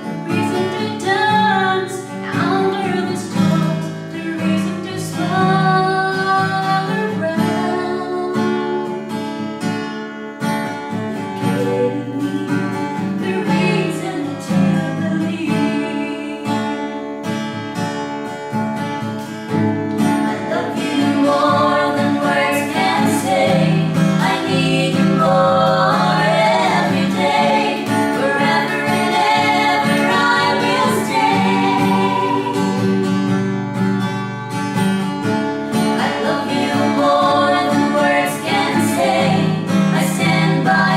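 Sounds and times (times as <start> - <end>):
acoustic guitar: 0.0 - 40.9
people singing: 0.3 - 8.2, 11.2 - 16.8, 20.2 - 33.5, 35.7 - 40.9.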